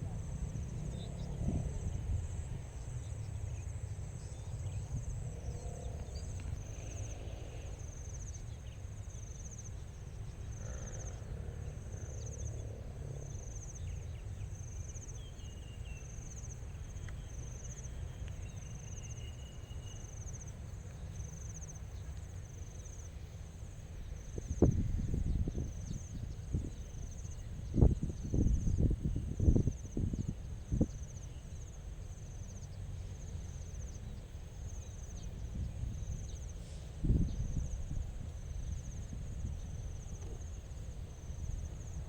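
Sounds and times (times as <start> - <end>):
insects trilling: 0.0 - 42.0
short insect chirps: 13.4 - 42.0.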